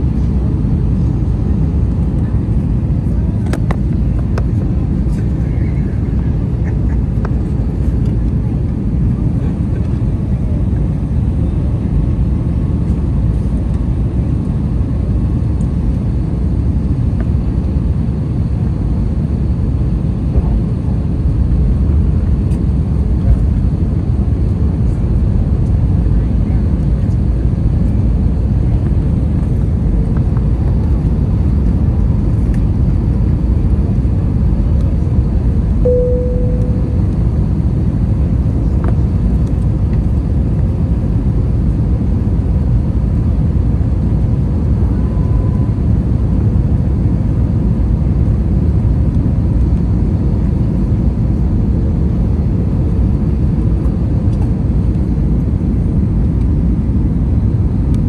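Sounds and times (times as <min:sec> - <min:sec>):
airflow roar in aircraft cabin: 0:00.0 - 0:58.0
jet engines droning: 0:00.0 - 0:58.0
short tone: 0:35.8 - 0:37.5.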